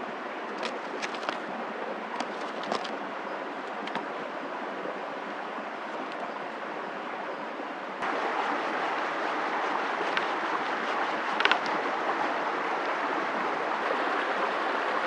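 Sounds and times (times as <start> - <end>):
steady outdoor rushing noise: 0.0 - 15.0.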